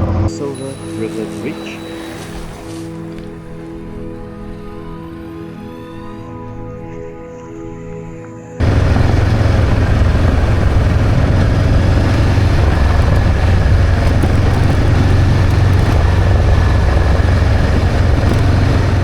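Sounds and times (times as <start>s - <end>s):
music: 0.0s - 8.6s
motorcycle engine running: 8.6s - 19.0s
wind rush on microphone: 8.6s - 19.0s.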